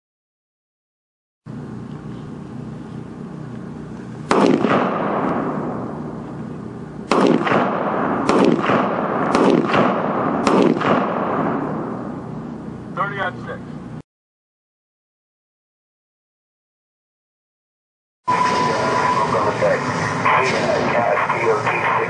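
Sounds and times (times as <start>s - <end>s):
gunshots with rolling echo: 4.3s - 12.8s.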